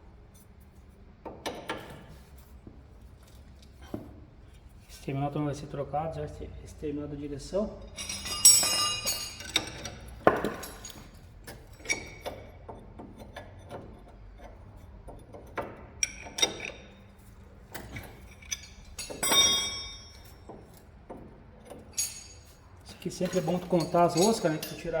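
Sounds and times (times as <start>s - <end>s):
metal tool clatter: 7.7s - 12.5s, 17.7s - 20.8s, 21.6s - 25.0s
metallic clinks of hand tools: 7.8s - 12.3s, 17.8s - 20.4s, 21.9s - 25.0s.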